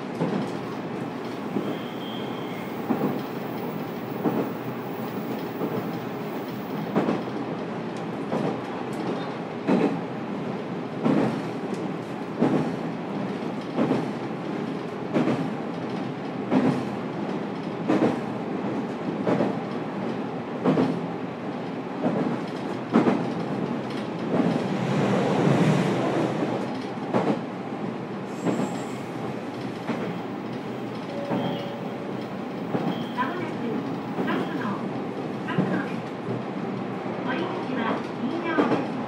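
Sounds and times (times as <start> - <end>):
train wheel-on-rail rumble: 0.0 - 39.0
rail-joint clack: 28.4 - 34.6.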